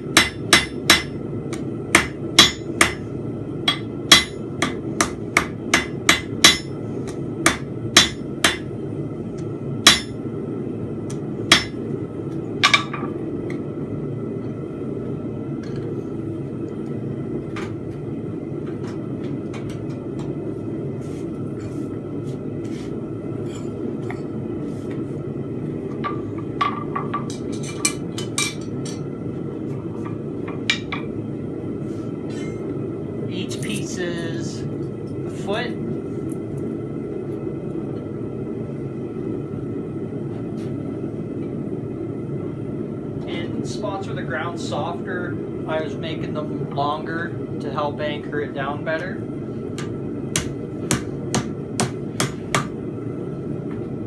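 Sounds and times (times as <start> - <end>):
hammer striking steel on anvil: 0.1 - 3.0, 3.6 - 8.7, 9.8 - 10.2, 11.5 - 11.8, 49.8 - 52.8.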